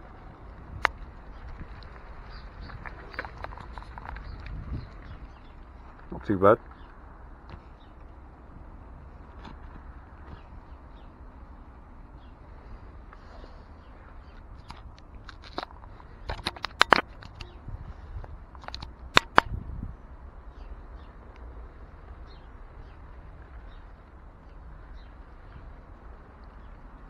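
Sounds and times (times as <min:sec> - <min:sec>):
sharp clicks and taps: 0:14.6 - 0:17.5, 0:18.6 - 0:19.6.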